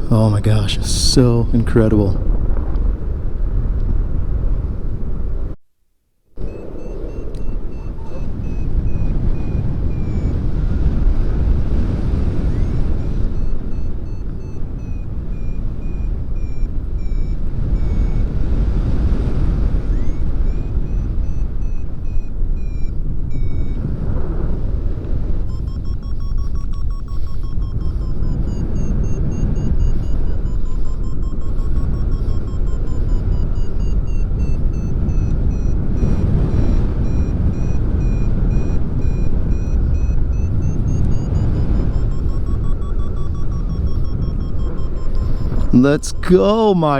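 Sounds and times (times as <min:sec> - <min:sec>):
wind rushing over microphone: 0:00.0 - 0:05.6, 0:06.4 - 0:46.9
variometer short high beeps: 0:06.4 - 0:24.0, 0:25.2 - 0:46.9.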